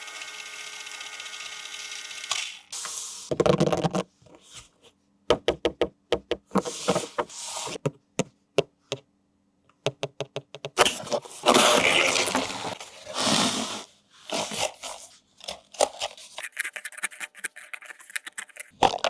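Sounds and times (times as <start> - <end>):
packaging rustling and scraping: 6.6 - 7.8, 10.8 - 19.0.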